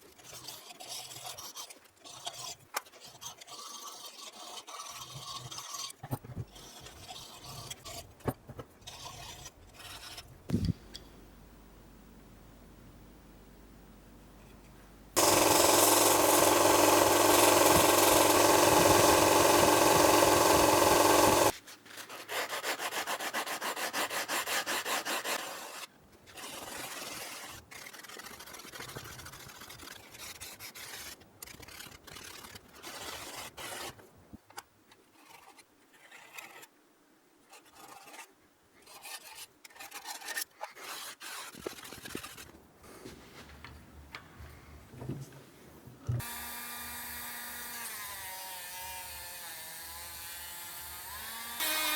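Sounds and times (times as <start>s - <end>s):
hand rubbing and scraping: 0.1s - 11.0s, 14.4s - 34.1s, 37.4s - 43.6s
power tool motor running: 15.2s - 21.5s, 51.5s - 51.9s.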